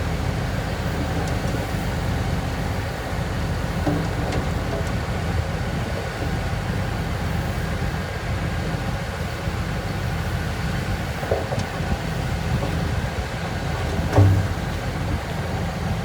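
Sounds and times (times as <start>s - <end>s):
heavy diesel machinery rumbling: 0.0s - 16.0s
short knocks: 3.7s - 5.3s, 11.3s - 16.0s.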